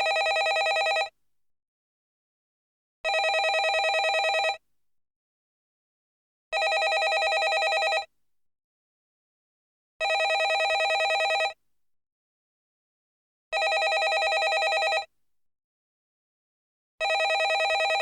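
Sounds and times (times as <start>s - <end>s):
telephone bell ringing: 0.0s - 1.1s, 3.1s - 4.6s, 6.6s - 8.1s, 10.0s - 11.6s, 13.6s - 15.1s, 17.0s - 18.0s.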